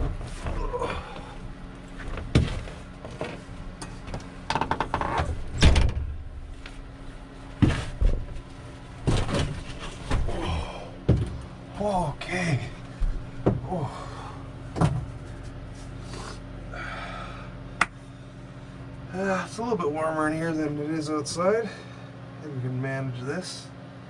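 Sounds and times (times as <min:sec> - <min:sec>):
low steady hum: 0:00.0 - 0:24.0
knocks thumps and rustles: 0:02.0 - 0:03.4, 0:07.5 - 0:10.4, 0:11.0 - 0:11.5, 0:13.0 - 0:13.7, 0:14.7 - 0:15.5.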